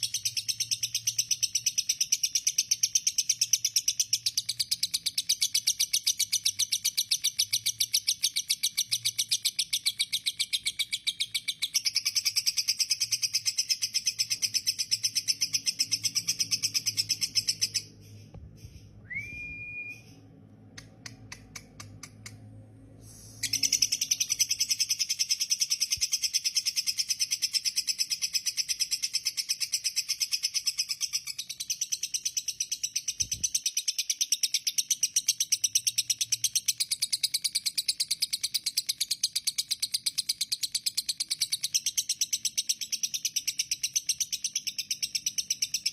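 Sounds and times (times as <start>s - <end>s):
short rising whistle: 19.0s - 20.2s
bird clicks: 20.7s - 22.4s.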